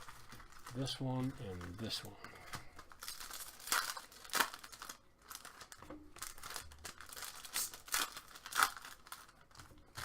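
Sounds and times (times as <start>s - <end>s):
wrappers tearing and crinkling: 0.0s - 10.0s.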